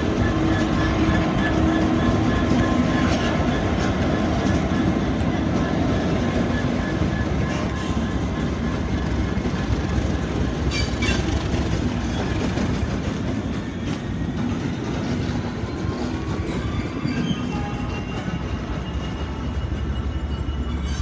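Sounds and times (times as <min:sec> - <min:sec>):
diesel train rumbling: 0:00.0 - 0:21.0
high wheel squeals: 0:00.2 - 0:04.1, 0:05.7 - 0:09.4, 0:10.6 - 0:12.9, 0:15.4 - 0:21.0.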